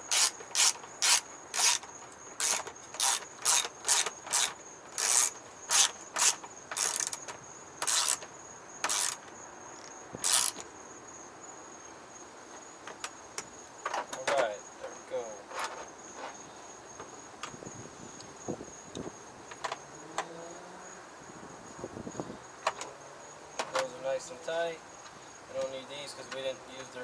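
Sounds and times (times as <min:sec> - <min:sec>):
socket ratchet clicking: 0:00.0 - 0:10.6.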